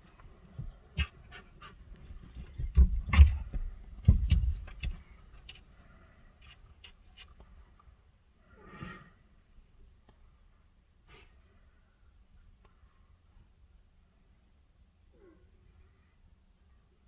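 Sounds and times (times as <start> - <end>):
faint ticks: 0.1 - 15.0
metallic jangling: 1.6 - 5.8.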